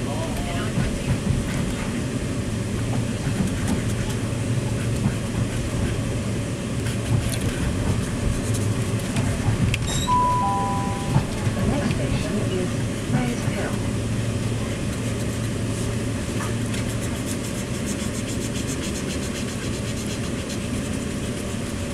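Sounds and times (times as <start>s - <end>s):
train rumbling inside carriage: 0.0s - 21.9s
steady electronic tones: 10.1s - 11.6s.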